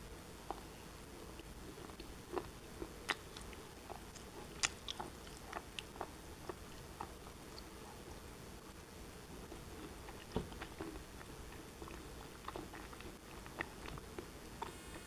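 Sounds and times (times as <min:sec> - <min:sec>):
shale being bitten and chewed: 0:01.8 - 0:07.8, 0:09.5 - 0:15.0.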